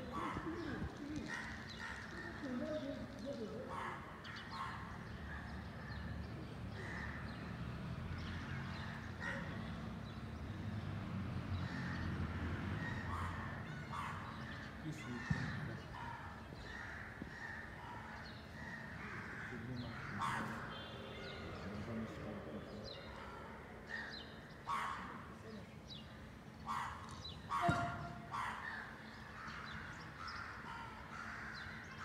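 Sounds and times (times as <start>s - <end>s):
birds calling: 0.0s - 32.0s.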